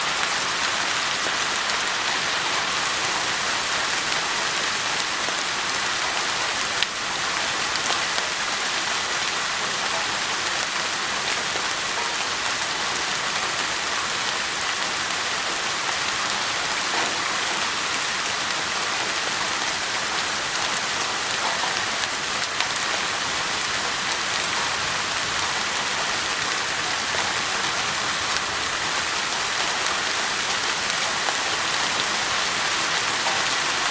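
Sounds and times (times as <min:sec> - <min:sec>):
rain falling on bushes: 0:00.0 - 0:33.9.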